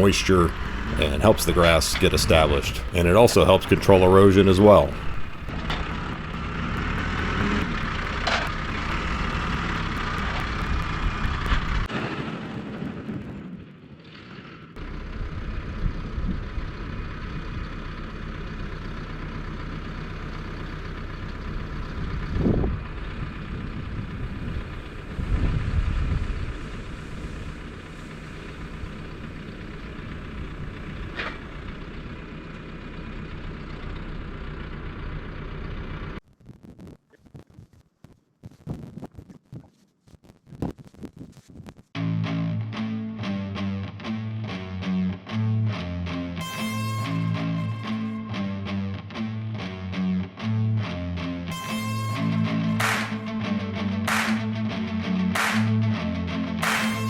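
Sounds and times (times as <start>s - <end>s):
farm machinery engine running: 0.0s - 12.9s, 14.3s - 36.2s, 46.4s - 48.4s, 51.5s - 54.7s.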